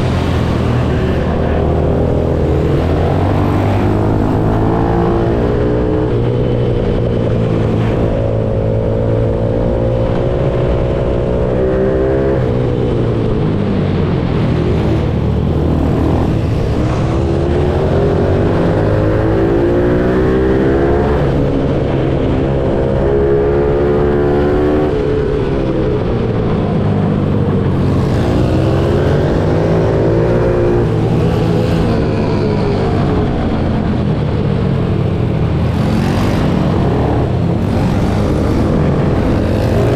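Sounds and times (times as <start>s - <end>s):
pitbike engine revving: 35.4s - 39.9s.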